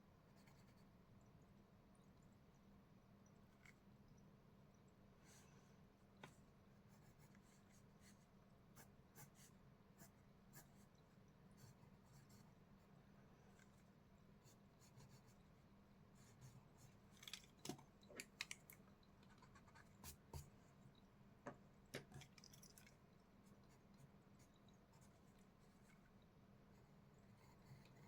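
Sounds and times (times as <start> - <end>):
low steady hum: 0.0 - 28.0
pencil scratching on paper: 0.3 - 0.8, 26.8 - 28.0.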